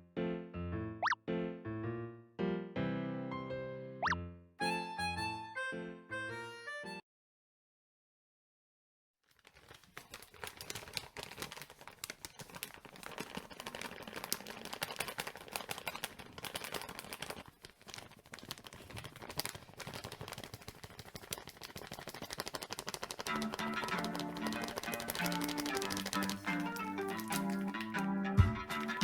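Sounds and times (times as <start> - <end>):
music: 0.0 - 7.0, 23.3 - 29.0
firewood crackling and popping: 9.5 - 29.0.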